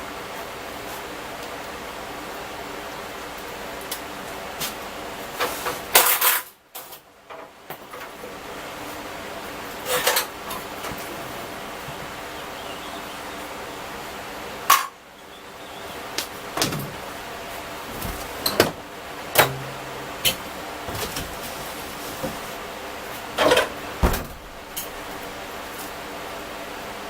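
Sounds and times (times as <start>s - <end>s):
steady background hum: 0.0s - 27.0s
sharp knocks and clanks of tools: 18.0s - 21.5s.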